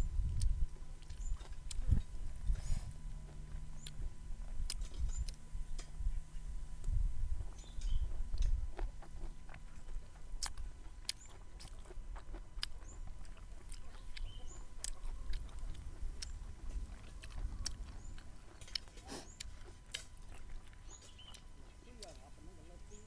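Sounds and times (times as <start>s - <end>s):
bamboo shoot being chewed: 0.0s - 22.9s.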